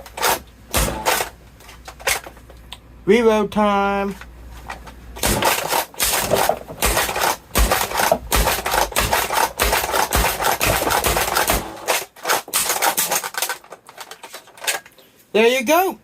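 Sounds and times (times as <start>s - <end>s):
plastic blaster clicks and clacks: 0.0s - 2.6s, 4.8s - 15.0s.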